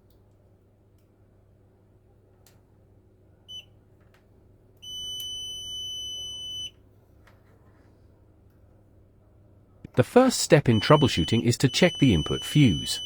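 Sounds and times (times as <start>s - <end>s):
multimeter beeping: 4.8s - 6.7s, 9.9s - 13.0s.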